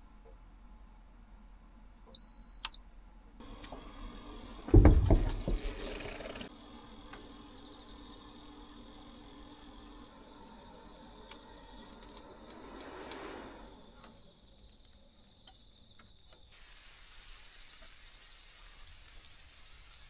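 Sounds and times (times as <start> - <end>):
insect chirping: 3.0 - 20.0
faint hiss: 3.4 - 20.0.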